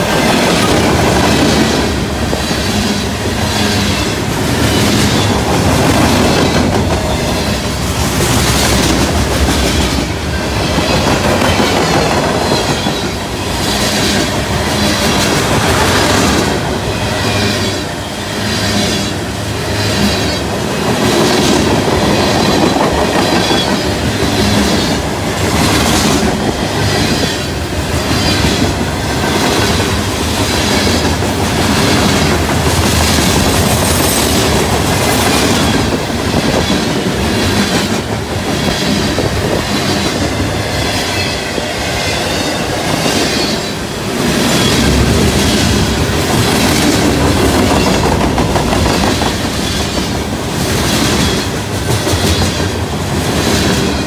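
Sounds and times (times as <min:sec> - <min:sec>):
wheels clacking over rail joints: 0:00.0 - 0:17.9
freight cars rumbling and rattling: 0:00.0 - 0:54.0.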